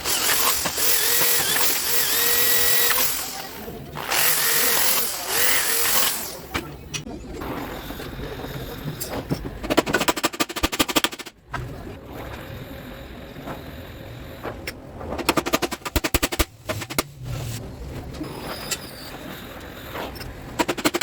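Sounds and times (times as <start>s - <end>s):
impact wrench hammering: 0.0s - 6.8s, 9.8s - 11.3s, 15.2s - 17.1s, 20.6s - 21.0s.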